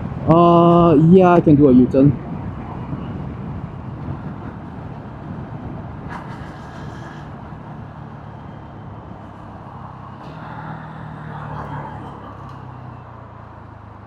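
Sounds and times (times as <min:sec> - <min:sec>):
motorcycle engine running: 0:02.9 - 0:14.0.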